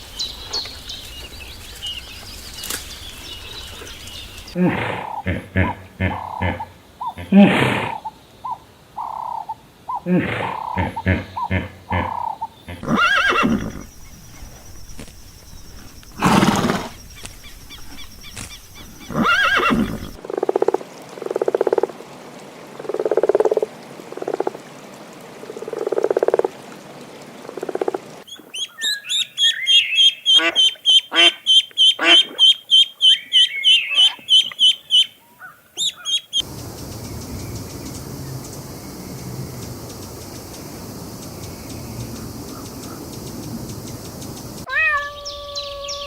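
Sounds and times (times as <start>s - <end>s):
loud animal calls: 4.5s - 14.0s, 18.8s - 20.2s
low buzzy animal calls: 4.6s - 14.0s
sharp high-pitched calls: 28.3s - 35.2s.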